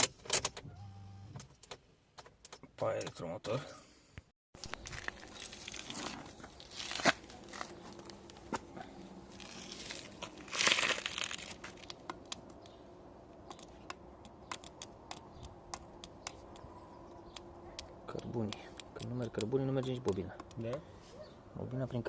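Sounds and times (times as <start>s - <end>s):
rustling handling noise: 4.6s - 12.1s.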